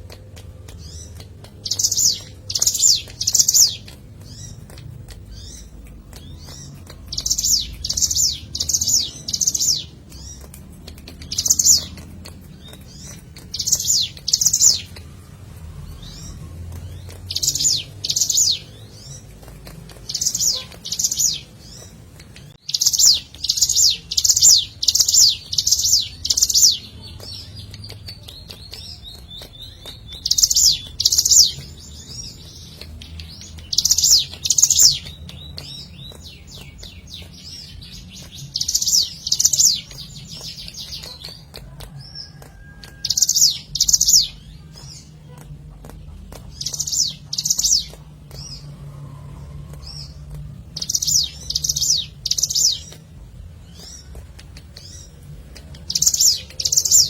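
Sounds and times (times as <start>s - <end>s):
bird singing rapid high notes: 0.7s - 19.4s.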